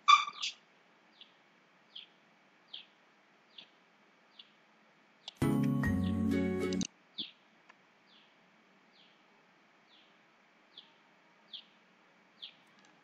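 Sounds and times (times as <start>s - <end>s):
low background hiss: 0.3s - 13.0s
music: 5.4s - 6.9s.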